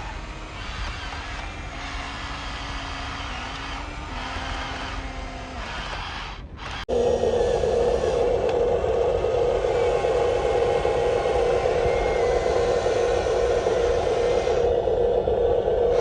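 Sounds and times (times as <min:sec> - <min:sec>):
toy electric motors whirring: 0:00.0 - 0:06.9
steady motor whine: 0:00.0 - 0:16.0.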